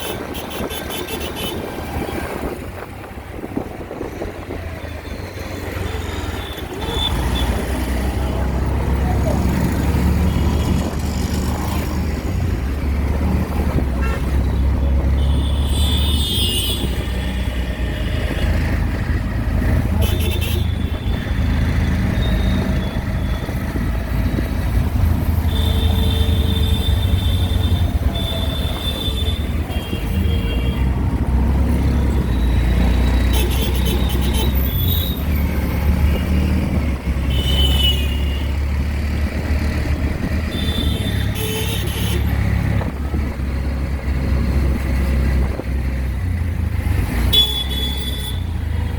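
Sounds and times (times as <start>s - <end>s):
auto-rickshaw engine drone: 0.0s - 48.9s
vehicle horns honking: 13.9s - 18.5s, 33.2s - 35.2s, 37.2s - 38.6s, 40.5s - 42.4s, 47.2s - 48.5s.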